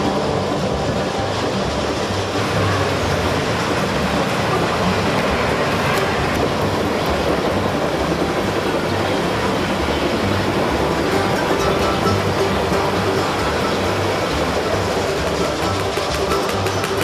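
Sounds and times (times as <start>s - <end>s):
freight train wheels on rails: 0.0s - 17.0s.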